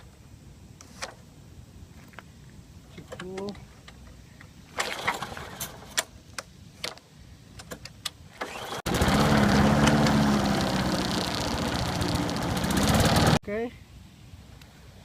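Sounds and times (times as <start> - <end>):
lawn mower engine running: 4.8 - 5.9, 8.4 - 13.4.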